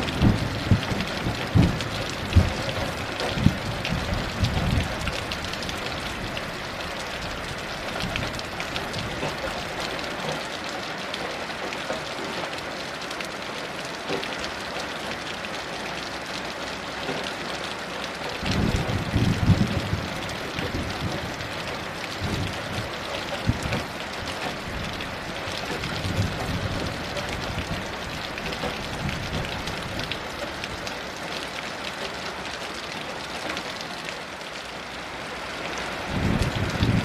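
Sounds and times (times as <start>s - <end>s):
distant thunder rumbling: 0.0s - 6.4s, 18.4s - 30.1s
heavy rain falling: 0.0s - 37.0s.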